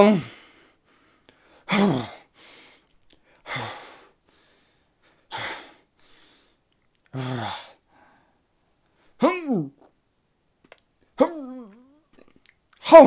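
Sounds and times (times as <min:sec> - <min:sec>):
person making hurumph noises: 0:11.2 - 0:12.3.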